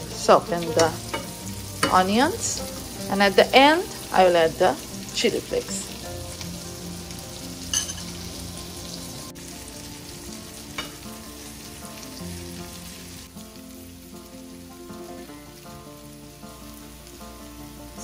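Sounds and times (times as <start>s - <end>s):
faint background music: 0.0s - 18.0s
food sizzling in oil: 0.0s - 18.0s
tongs clicking on pan: 0.6s - 2.2s, 7.7s - 8.1s, 10.8s - 11.0s.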